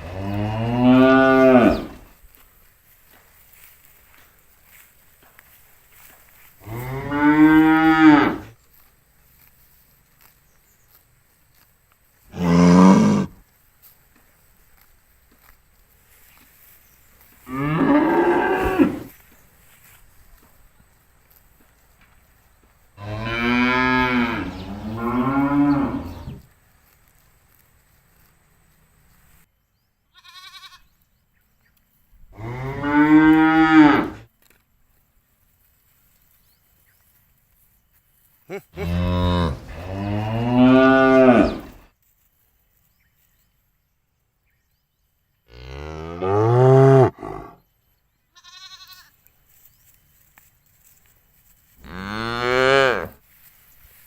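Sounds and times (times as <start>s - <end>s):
cows mooing: 0.0s - 2.1s, 6.6s - 8.5s, 12.3s - 13.4s, 17.5s - 19.1s, 23.0s - 26.4s, 32.4s - 34.2s, 38.8s - 41.8s, 45.5s - 47.6s, 51.8s - 53.2s.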